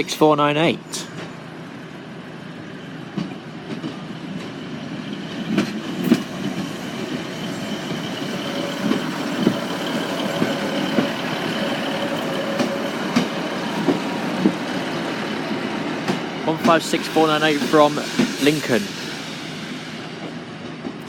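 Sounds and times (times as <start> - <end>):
train rolling: 0.0 - 21.0
wheels clacking over rail joints: 5.3 - 16.9.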